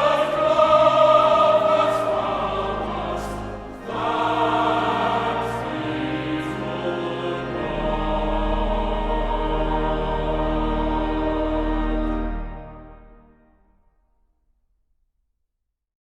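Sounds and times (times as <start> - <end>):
choral music: 0.0 - 13.8.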